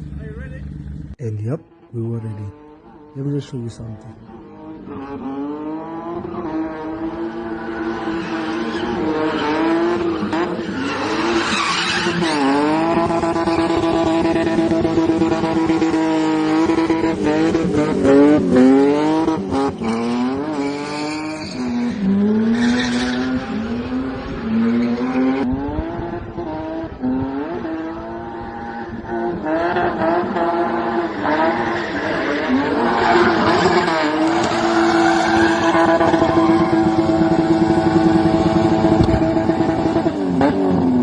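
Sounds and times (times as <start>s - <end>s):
car engine revving hard: 4.3s - 41.0s.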